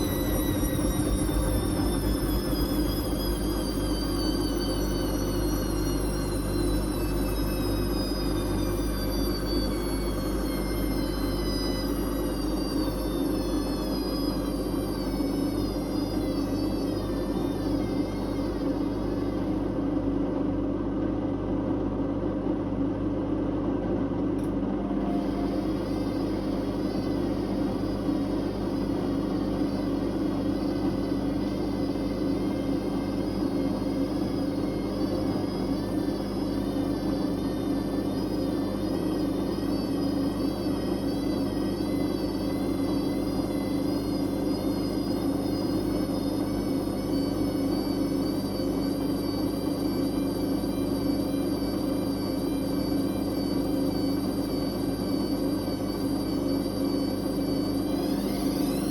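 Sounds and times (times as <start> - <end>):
washing machine spinning: 0.0 - 58.9.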